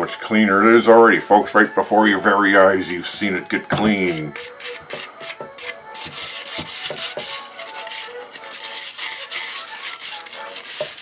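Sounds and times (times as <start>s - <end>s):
wire brush scrubbing metal: 3.9s - 11.0s.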